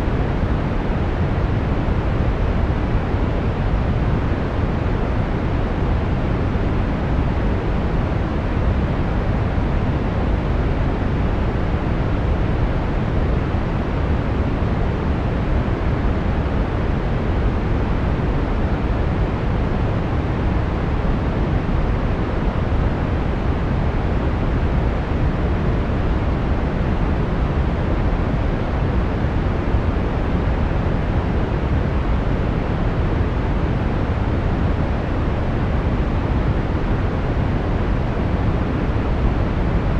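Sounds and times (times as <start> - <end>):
brown noise rumbling hiss: 0.0 - 39.9.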